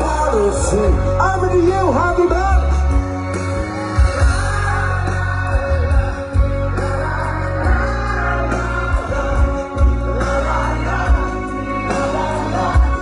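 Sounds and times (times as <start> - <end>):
live rock band playing: 0.0 - 13.0
person singing: 0.0 - 13.0.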